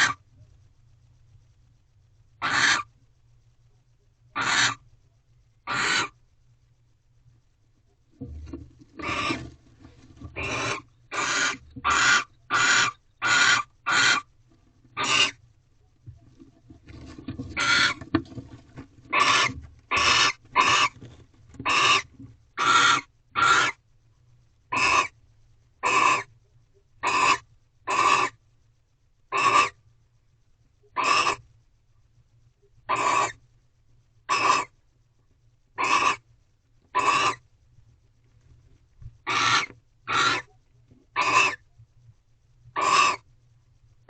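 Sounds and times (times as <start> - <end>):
owls rasping calls: 0.0 - 0.2, 2.4 - 2.9, 4.4 - 4.8, 5.7 - 6.2, 8.9 - 9.6, 10.2 - 14.3, 15.0 - 15.4, 16.9 - 18.0, 19.1 - 21.0, 21.6 - 23.8, 24.7 - 25.2, 25.8 - 26.3, 27.0 - 28.4, 29.3 - 29.8, 30.9 - 31.4, 32.9 - 33.4, 34.3 - 34.8, 35.8 - 36.3, 36.9 - 37.4, 39.2 - 41.6, 42.7 - 43.3.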